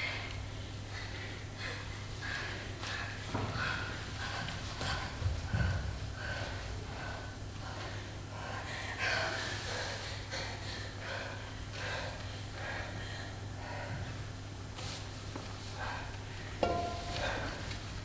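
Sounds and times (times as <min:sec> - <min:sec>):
steady low hum: 0:00.3 - 0:18.0
sharp breaths and gasps: 0:00.9 - 0:15.1.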